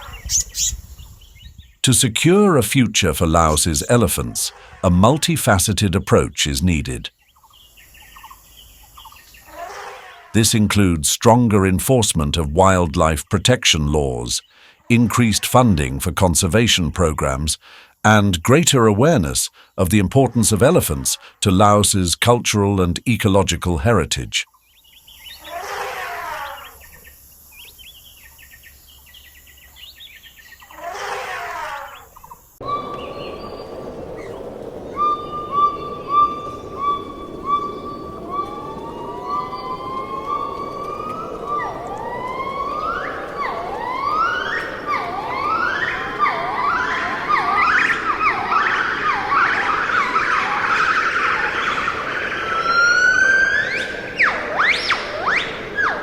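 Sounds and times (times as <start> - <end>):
long rising animal call: 32.6 - 56.0
whistle-like animal calls: 32.6 - 56.0.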